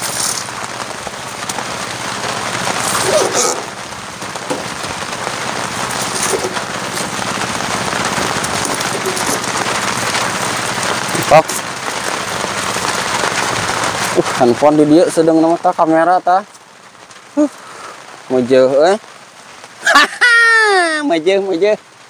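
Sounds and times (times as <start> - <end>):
steady rain hissing: 0.0 - 22.0.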